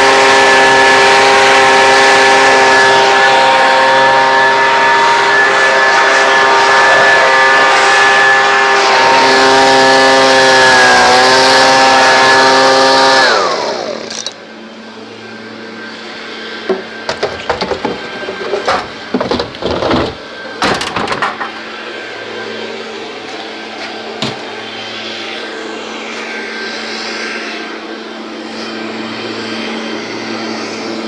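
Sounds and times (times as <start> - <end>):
leaf blower whining: 0.0 - 31.0
knocks and clicks: 16.7 - 21.6.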